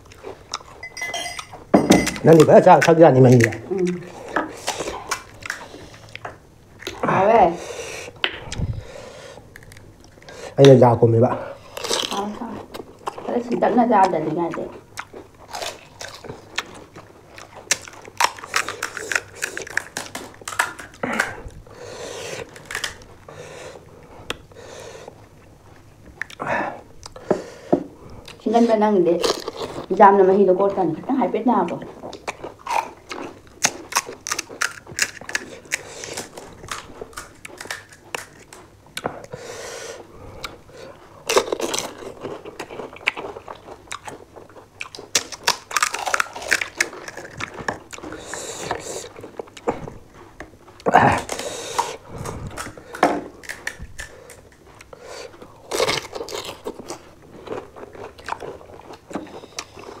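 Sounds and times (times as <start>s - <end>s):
crisp shells cracking while chewing: 0.0s - 7.1s, 9.3s - 10.9s, 11.6s - 13.3s, 13.9s - 23.6s, 31.7s - 39.4s, 40.4s - 60.0s.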